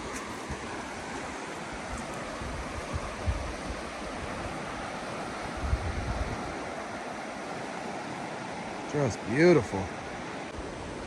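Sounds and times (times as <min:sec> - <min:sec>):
wind buffeting microphone: 0:00.0 - 0:07.1
river water rushing: 0:00.0 - 0:11.0.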